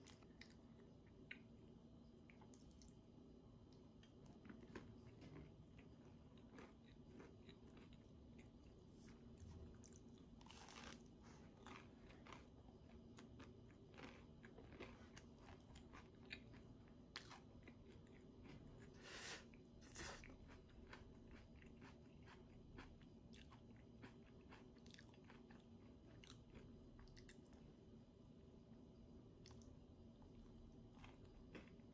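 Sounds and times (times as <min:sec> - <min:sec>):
crunching bites of toast: 0:10.3 - 0:12.6, 0:13.2 - 0:16.6.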